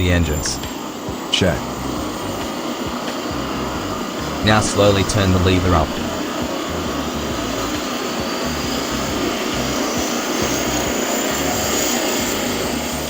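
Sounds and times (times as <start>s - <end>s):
engine and rotor rumble: 0.0s - 13.0s
helicopter turbine whine rising: 0.0s - 13.0s.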